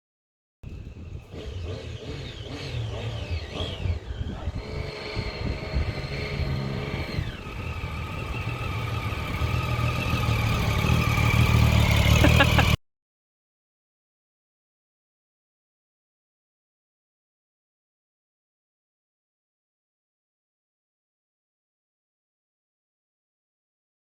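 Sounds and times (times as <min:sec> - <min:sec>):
motorcycle engine revving: 0:00.7 - 0:12.8.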